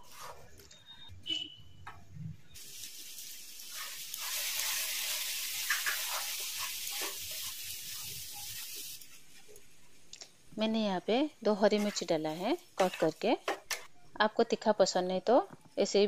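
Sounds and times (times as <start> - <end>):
wooden spatula stirring: 0.0 - 0.6, 5.6 - 9.7, 11.5 - 13.8
food sizzling in a pan: 2.6 - 9.7, 11.4 - 13.6.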